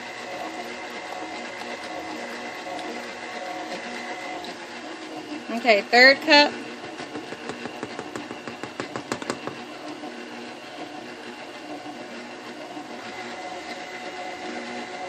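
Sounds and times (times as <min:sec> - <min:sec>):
electric mixer running: 0:00.0 - 0:15.0.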